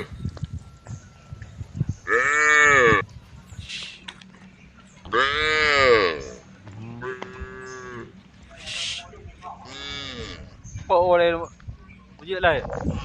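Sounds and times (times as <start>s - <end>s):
cows mooing: 2.0s - 3.0s, 5.1s - 8.2s, 9.6s - 10.6s.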